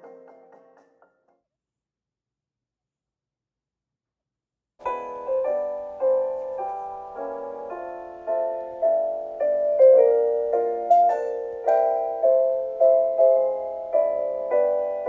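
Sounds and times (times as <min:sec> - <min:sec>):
piano music: 0:00.0 - 0:01.1, 0:04.8 - 0:15.0.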